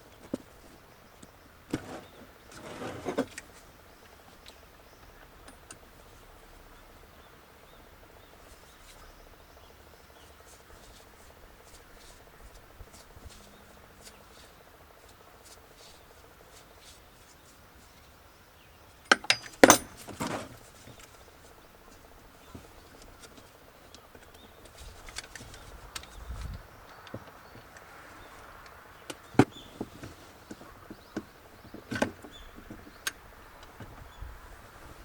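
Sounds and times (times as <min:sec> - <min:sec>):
hard objects clicking and knocking: 0:19.1 - 0:20.6.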